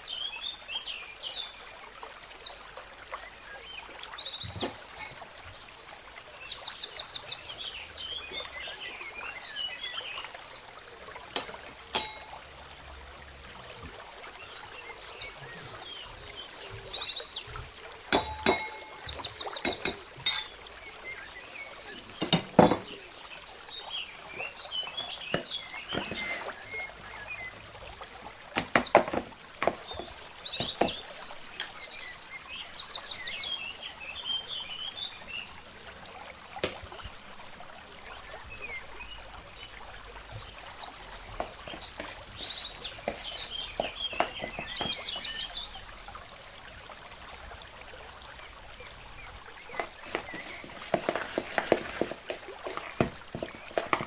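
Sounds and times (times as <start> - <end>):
small birds chirping and trilling: 0.0 - 37.2, 38.0 - 54.0
sharp knocks and clatter: 17.5 - 20.6, 22.1 - 23.1, 28.6 - 31.8, 41.5 - 45.3.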